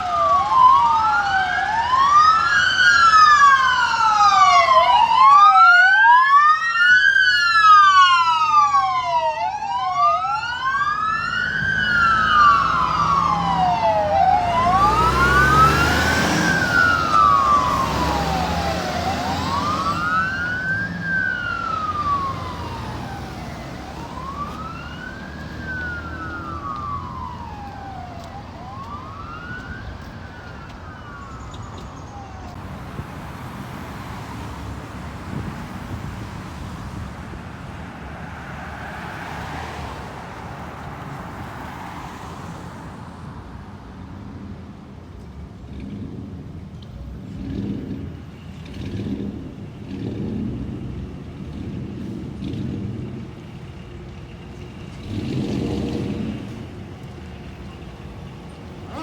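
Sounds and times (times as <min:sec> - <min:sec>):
truck engine rumbling: 0:00.0 - 0:41.6, 0:44.1 - 0:59.0
fire truck siren wailing: 0:00.0 - 0:42.3, 0:49.4 - 0:59.0
traffic noise: 0:00.0 - 0:59.0.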